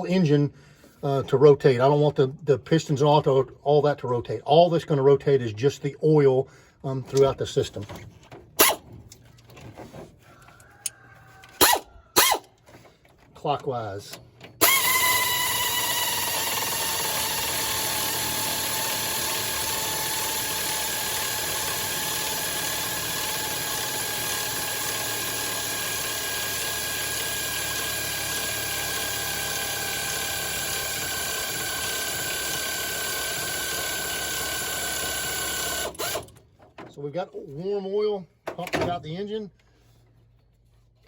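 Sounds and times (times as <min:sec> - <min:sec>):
air ratchet hissing whine: 0:11.5 - 0:12.5, 0:14.6 - 0:36.3.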